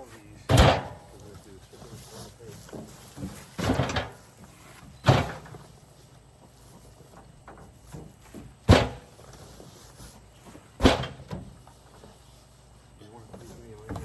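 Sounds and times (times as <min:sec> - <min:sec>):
heavy sacks thudding: 0:00.0 - 0:05.8.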